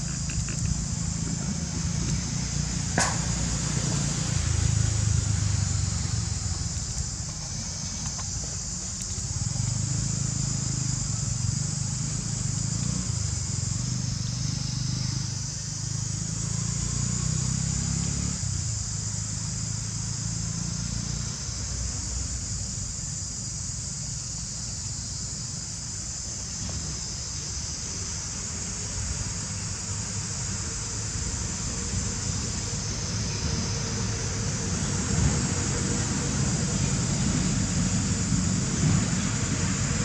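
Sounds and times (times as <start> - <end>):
high-pitched insect buzzing: 0.0 - 2.6
low motor rumble: 0.0 - 17.2, 18.3 - 40.0.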